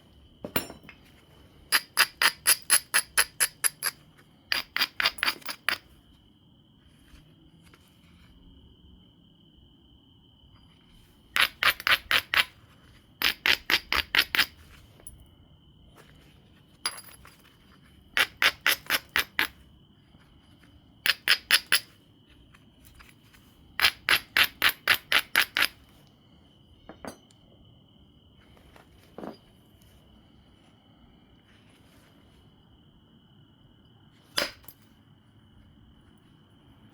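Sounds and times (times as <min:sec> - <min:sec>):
knapping tool tapping stone: 0:01.7 - 0:05.8, 0:13.2 - 0:14.5.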